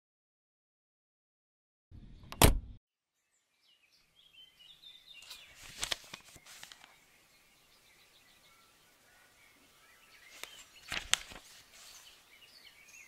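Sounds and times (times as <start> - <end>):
small birds chirping: 3.1 - 13.0.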